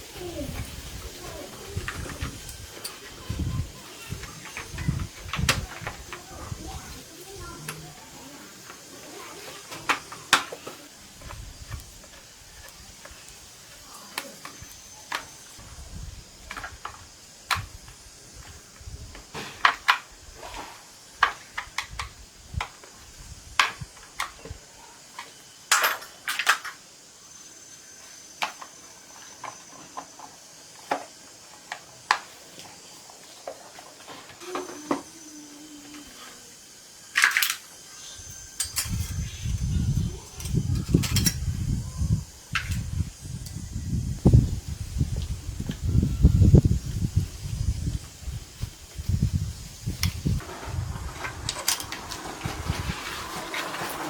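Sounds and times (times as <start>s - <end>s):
metal tools clinking: 38.3s - 41.4s.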